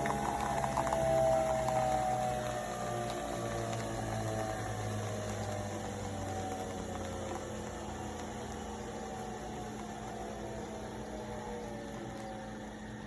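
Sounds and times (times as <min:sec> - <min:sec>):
coffee machine motor and pump hum: 0:00.0 - 0:13.0.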